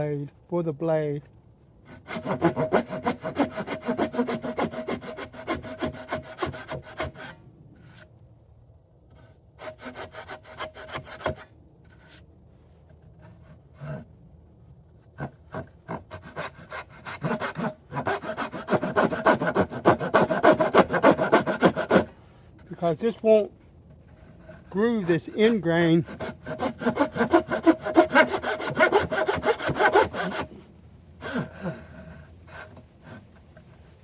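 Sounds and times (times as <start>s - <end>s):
hand tool rasping on wood: 1.9s - 7.3s, 15.2s - 22.1s, 24.4s - 30.5s.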